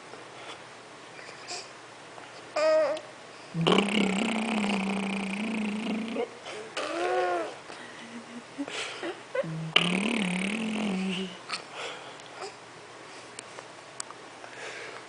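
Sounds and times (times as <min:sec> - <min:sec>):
child growling: 0:06.0 - 0:07.6
child making small sounds: 0:06.1 - 0:07.6.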